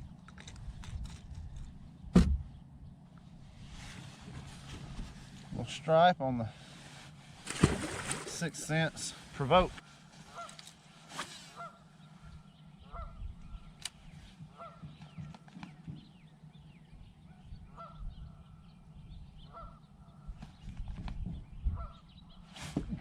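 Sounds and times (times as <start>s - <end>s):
geese honking: 10.2s - 10.6s, 11.5s - 11.9s, 12.8s - 13.2s, 14.5s - 14.8s, 17.7s - 18.0s, 19.4s - 19.8s.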